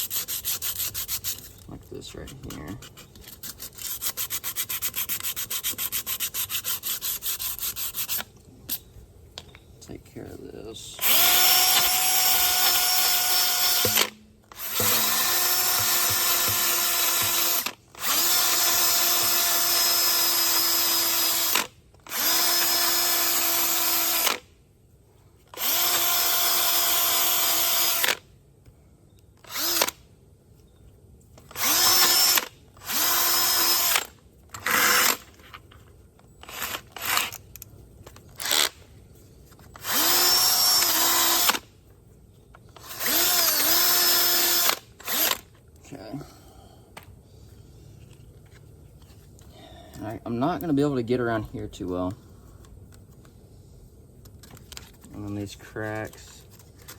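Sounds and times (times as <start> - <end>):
power drill sanding metal: 0.0 - 1.6, 3.4 - 8.3, 11.0 - 24.2.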